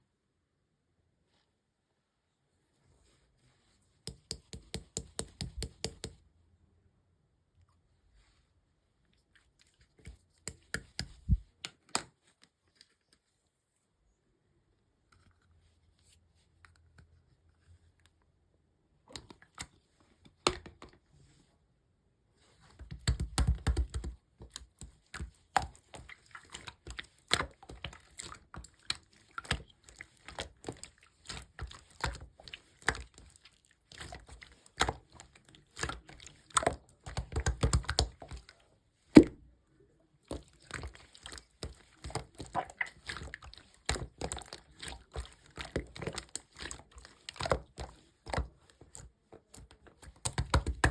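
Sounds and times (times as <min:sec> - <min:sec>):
slime squished by hand: 0:22.7 - 0:39.4, 0:40.3 - 0:50.9.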